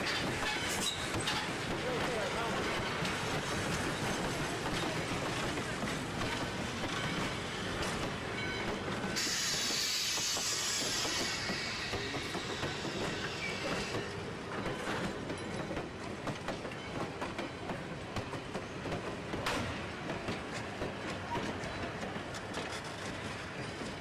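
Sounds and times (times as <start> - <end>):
wheel squeals: 0.0 - 1.6
train wheels rumbling and clacking: 0.0 - 24.0
high hiss: 9.2 - 13.9.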